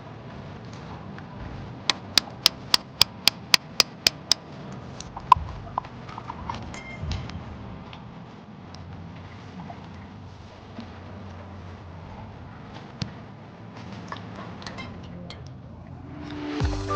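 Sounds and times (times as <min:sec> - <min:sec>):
hand tool knocking on shells: 0:01.9 - 0:04.4.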